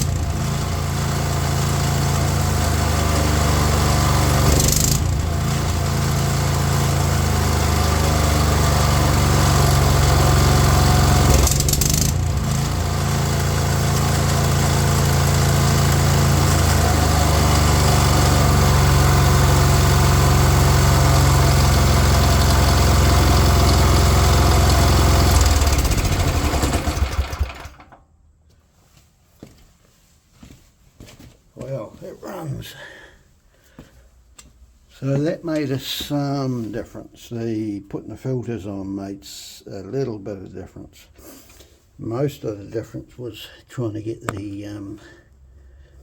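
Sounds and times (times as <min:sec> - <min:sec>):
small petrol engine running: 0:00.0 - 0:28.0.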